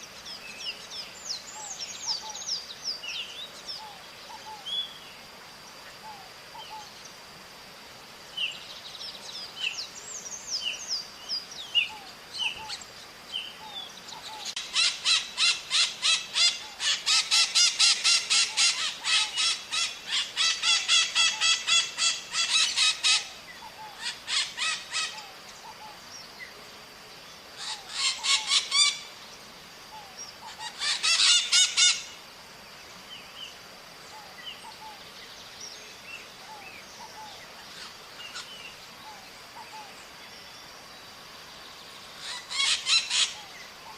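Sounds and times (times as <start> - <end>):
small birds chirping: 0.0 - 7.2
parrots screeching: 14.6 - 23.3, 24.0 - 25.2, 27.6 - 29.0, 30.5 - 32.0, 42.2 - 43.5.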